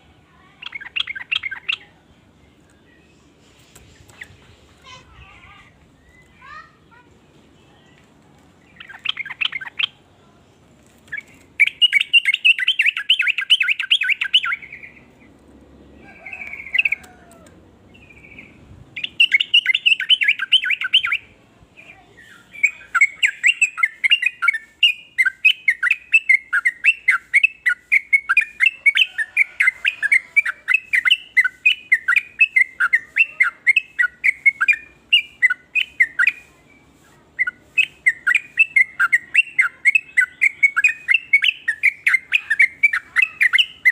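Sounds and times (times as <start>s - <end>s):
bird chattering calls: 0.6s - 1.9s, 8.7s - 10.0s, 11.1s - 15.2s, 18.0s - 21.3s, 22.2s - 36.5s, 37.4s - 43.9s.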